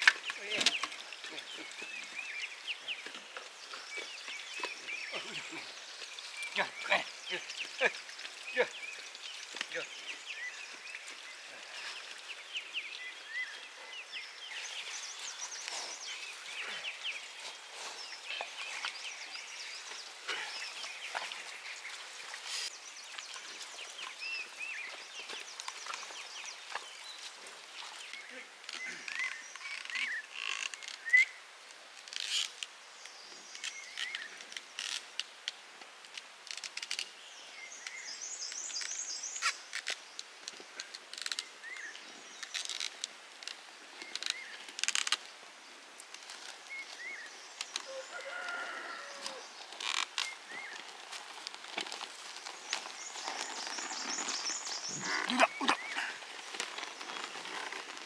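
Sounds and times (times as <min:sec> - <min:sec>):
birds chirping and trilling: 0:00.1 - 0:27.3, 0:27.9 - 0:31.3, 0:52.3 - 0:58.0.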